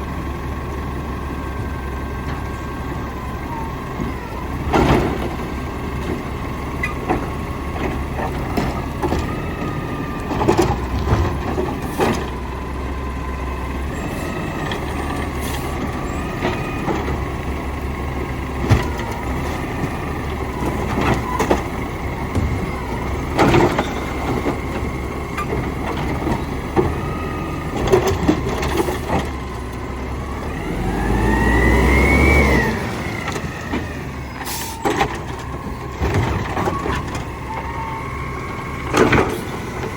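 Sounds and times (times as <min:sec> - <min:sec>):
garbage truck engine running: 0:00.0 - 0:39.9
engine revving with whine: 0:30.2 - 0:34.3.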